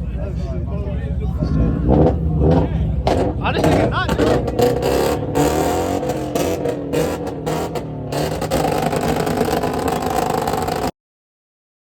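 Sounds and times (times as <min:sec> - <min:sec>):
car engine revving: 0:00.0 - 0:10.9.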